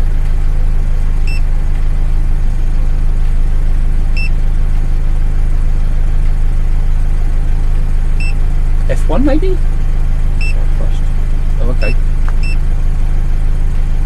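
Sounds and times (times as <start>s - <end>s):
car engine idling: 0.0s - 14.0s
short electronic beeps: 8.2s - 8.4s, 11.8s - 12.6s.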